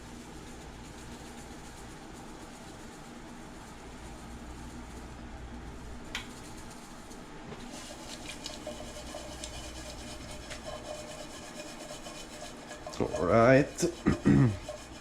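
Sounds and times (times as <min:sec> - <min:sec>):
utensil scraping in pan: 0:05.8 - 0:15.0
shrimp sizzling in a frying pan: 0:07.7 - 0:13.6.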